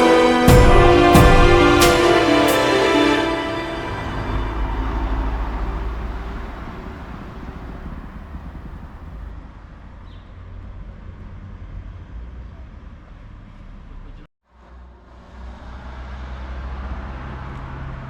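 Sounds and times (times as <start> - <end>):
road traffic rumble: 0.5 - 9.3.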